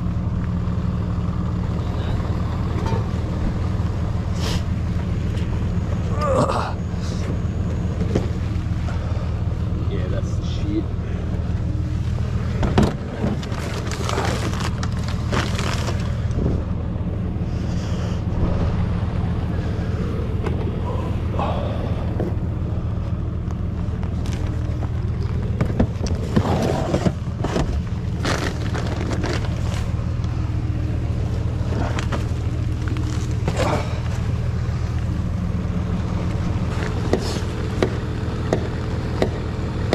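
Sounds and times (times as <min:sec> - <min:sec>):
engine low drone: 0:00.0 - 0:39.9.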